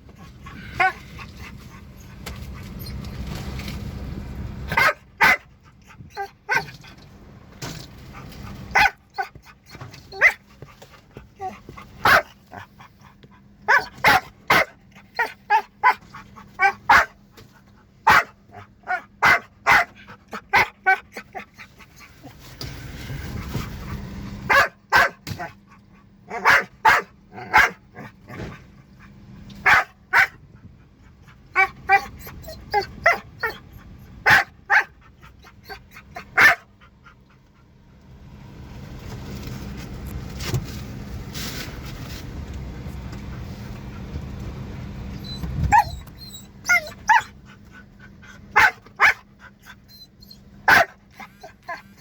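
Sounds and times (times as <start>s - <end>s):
dog barking: 4.7s - 5.5s, 8.7s - 9.4s, 10.1s - 10.4s, 12.0s - 12.7s, 13.6s - 17.2s, 18.0s - 21.5s, 24.5s - 25.6s, 26.3s - 28.1s, 29.6s - 30.4s, 31.5s - 32.2s, 32.8s - 33.6s, 34.2s - 35.0s, 35.7s - 36.7s, 46.7s - 47.4s, 48.5s - 49.3s, 50.7s - 52.0s.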